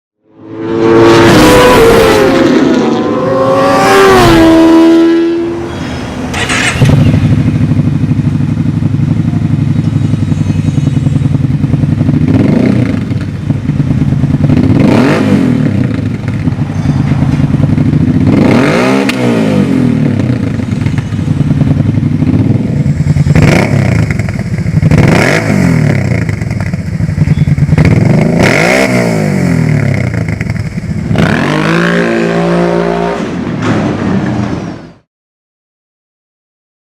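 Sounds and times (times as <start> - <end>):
atv engine revving and idling: 3.2 - 33.2.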